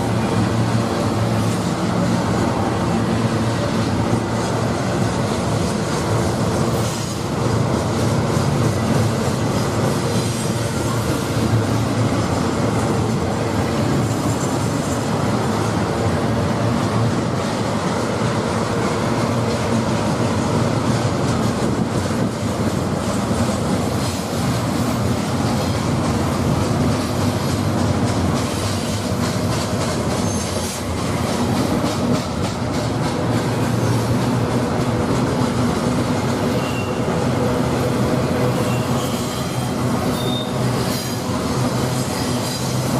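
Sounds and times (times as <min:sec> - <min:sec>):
freight train cars rolling: 0:00.0 - 0:42.9
high-pitched wheel squeal: 0:36.5 - 0:37.1, 0:38.6 - 0:41.2.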